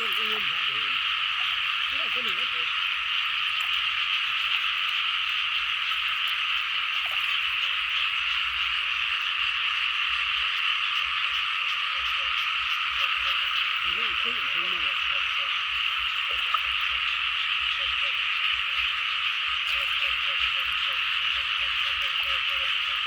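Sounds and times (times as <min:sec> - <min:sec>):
frogs calling in chorus: 0:00.0 - 0:23.0.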